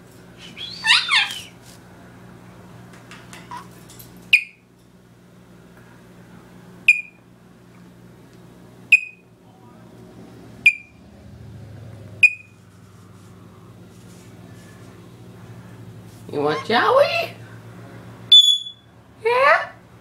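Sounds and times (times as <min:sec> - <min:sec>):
faint steady hum: 0:00.0 - 0:20.0
pet bird calls: 0:00.4 - 0:01.5.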